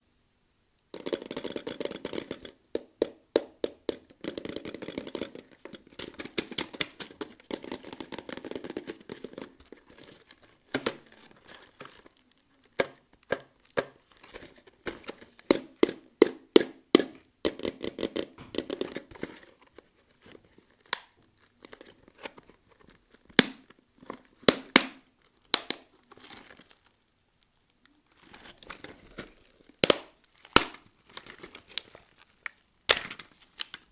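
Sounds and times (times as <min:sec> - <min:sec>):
candy wrapper crinkling: 0:03.8 - 0:16.1, 0:18.2 - 0:33.9
sharp snaps and clicks: 0:20.9 - 0:21.2.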